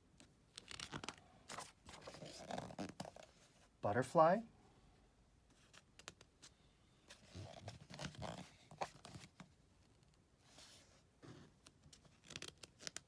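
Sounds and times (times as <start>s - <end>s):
book pages turning: 0.5s - 3.5s, 7.1s - 9.5s, 10.6s - 13.0s.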